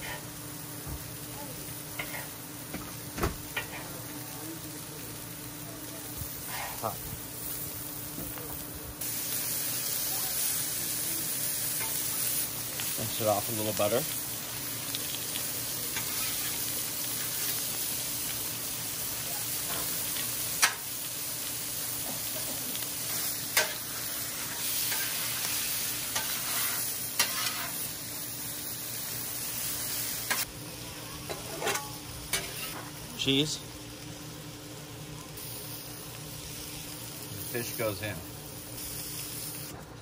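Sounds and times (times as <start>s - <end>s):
fish sizzling on a griddle: 0.0s - 40.0s
metal spatula scraping: 26.2s - 27.8s, 31.3s - 32.8s.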